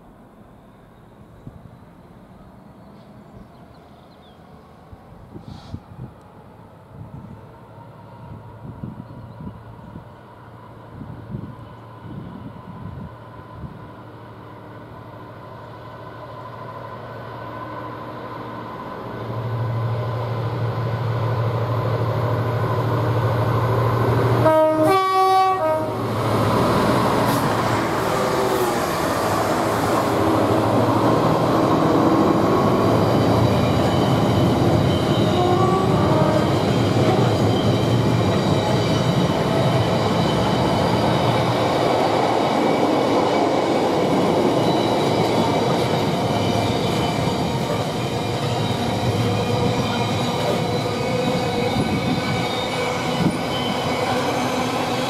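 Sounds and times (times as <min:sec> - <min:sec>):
diesel locomotive engine hum: 0:00.0 - 0:55.0
rolling rumble and rail clatter: 0:18.2 - 0:55.0
train horn: 0:24.3 - 0:26.1, 0:35.0 - 0:37.5.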